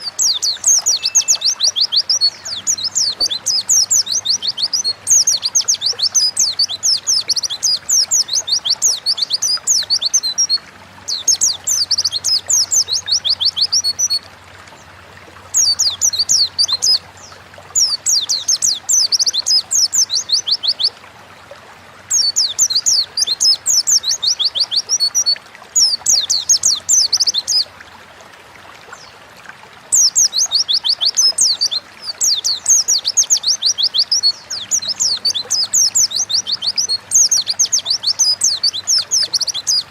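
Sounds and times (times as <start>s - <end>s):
bird singing high twittering: 0.0s - 14.2s, 15.5s - 20.9s, 30.0s - 39.9s.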